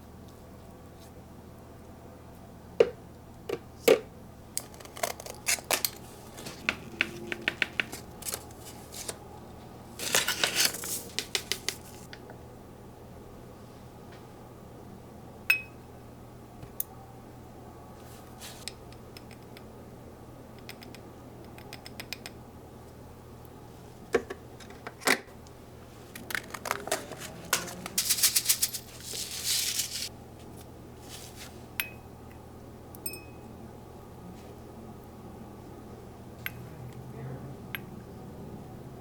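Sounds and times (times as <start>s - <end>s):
objects rattling and clattering: 4.6s - 9.2s, 10.0s - 12.1s, 26.1s - 30.1s.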